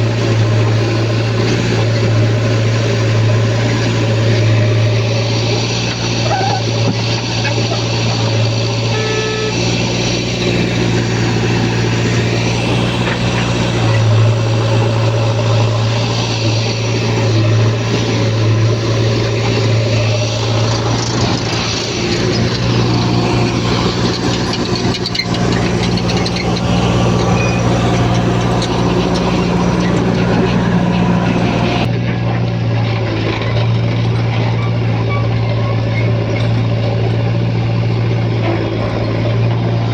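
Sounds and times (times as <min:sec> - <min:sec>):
heavy diesel engine running: 0:00.0 - 0:39.9
mechanical clatter: 0:09.8 - 0:37.4.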